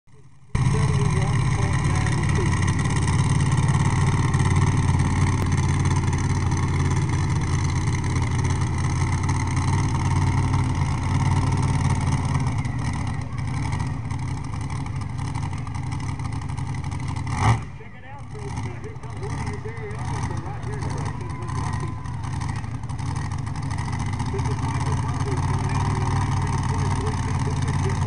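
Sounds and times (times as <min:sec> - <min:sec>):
tractor engine running hard: 0:00.1 - 0:28.0.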